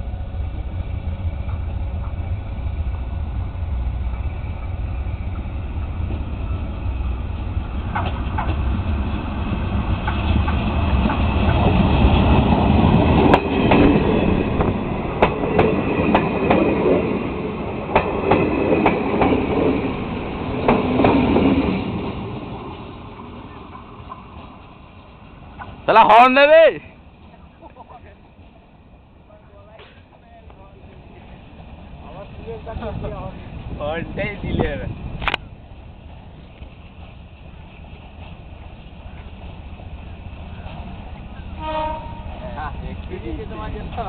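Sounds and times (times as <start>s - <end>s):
train rumbling on track: 0.0s - 44.0s
wheels clacking over rail joints: 7.2s - 26.1s.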